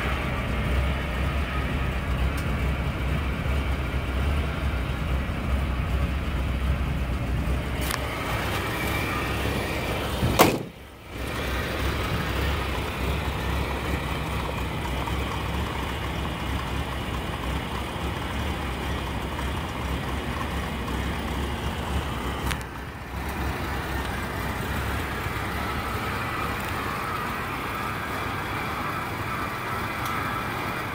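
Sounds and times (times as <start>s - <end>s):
car engine idling: 0.0s - 30.9s
sharp thump: 10.2s - 10.8s.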